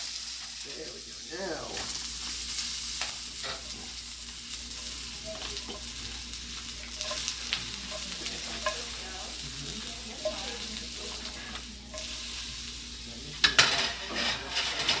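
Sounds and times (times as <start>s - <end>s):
mushrooms sizzling in a frying pan: 0.0s - 15.0s
utensil scraping a pan: 6.8s - 9.5s, 13.4s - 15.0s.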